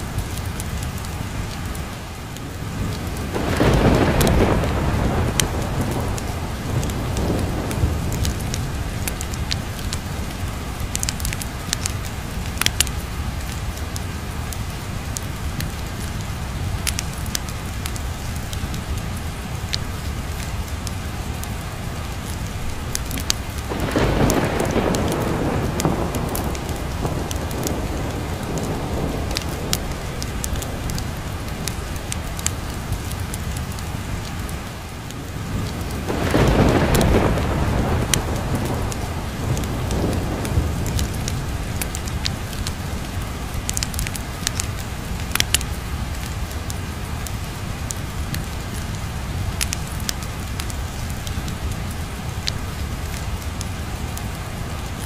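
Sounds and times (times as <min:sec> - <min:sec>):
sharp crackles: 0:00.0 - 0:55.0
steady rain: 0:00.0 - 0:55.0
thunder rolling: 0:02.7 - 0:10.2, 0:23.0 - 0:32.9, 0:35.4 - 0:44.2.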